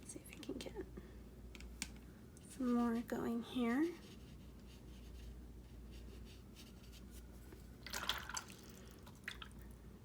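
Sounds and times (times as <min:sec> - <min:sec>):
paintbrush brushing on paper: 0:02.4 - 0:07.4.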